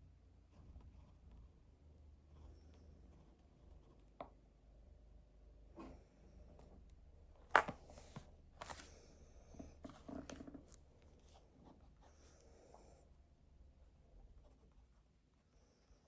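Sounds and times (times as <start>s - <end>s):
paper rustling: 7.5s - 8.9s.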